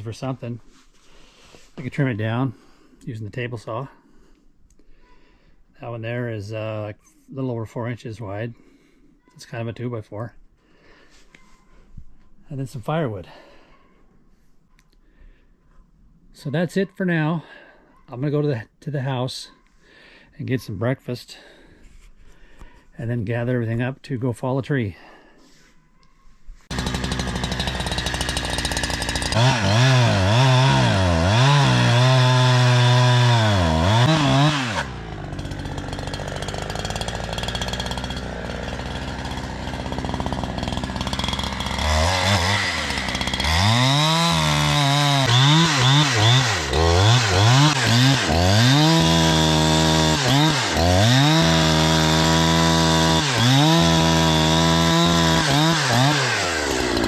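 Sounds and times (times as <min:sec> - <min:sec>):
two-stroke chainsaw revving: 0:26.7 - 0:57.0.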